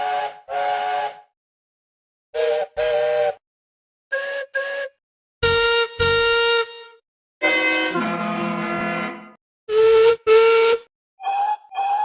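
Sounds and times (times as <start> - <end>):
train whistles tooting: 0.0 - 1.3, 2.4 - 3.4, 4.1 - 12.0
louder lower whistle: 2.4 - 3.4, 4.1 - 6.9, 9.7 - 12.0.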